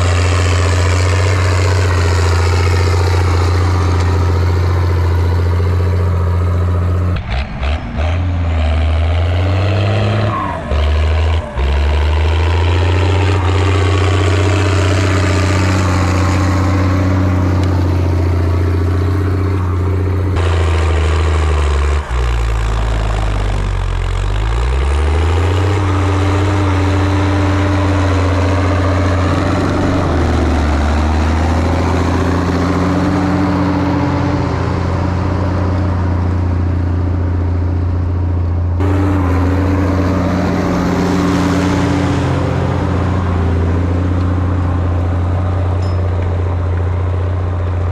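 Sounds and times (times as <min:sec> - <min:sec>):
tractor diesel engine under load: 0:00.0 - 0:47.9.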